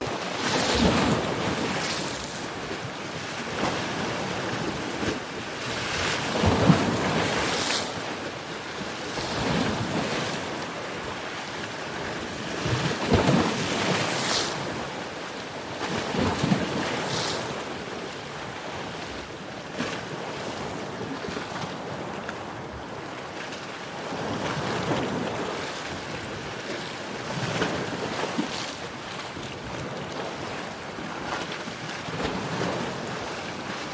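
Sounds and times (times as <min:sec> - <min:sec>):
ocean waves breaking: 0:24.8 - 0:33.9.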